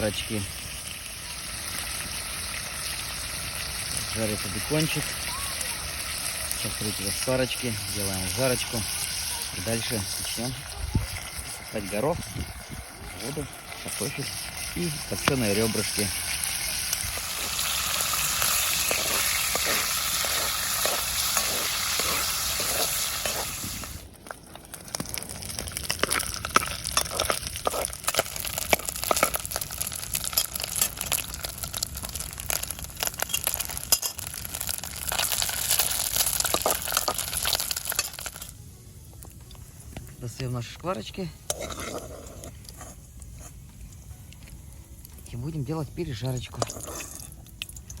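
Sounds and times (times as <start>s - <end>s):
bacon sizzling in fat: 0.0s - 48.0s
utensil scraping a pot: 13.2s - 24.0s, 41.4s - 43.6s, 46.4s - 47.4s.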